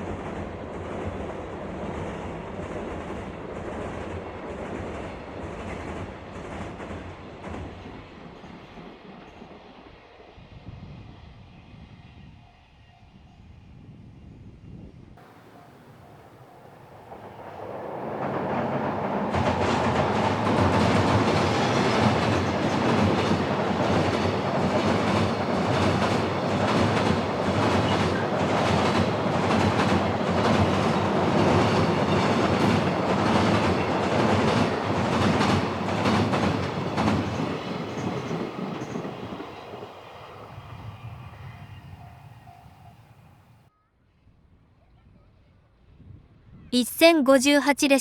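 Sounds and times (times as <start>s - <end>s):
freight train wheels clicking: 15.2s - 39.4s.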